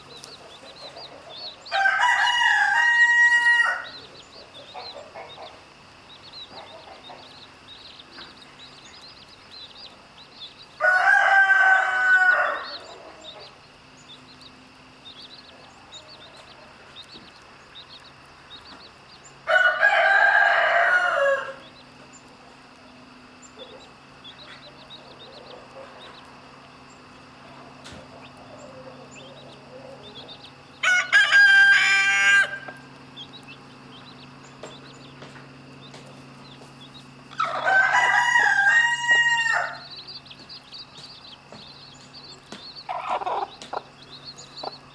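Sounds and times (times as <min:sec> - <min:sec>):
chicks peeping: 0:00.0 - 0:44.9
rooster crowing: 0:01.5 - 0:04.1, 0:10.8 - 0:13.5, 0:19.4 - 0:21.9, 0:28.1 - 0:32.9, 0:37.3 - 0:40.0, 0:42.9 - 0:43.6.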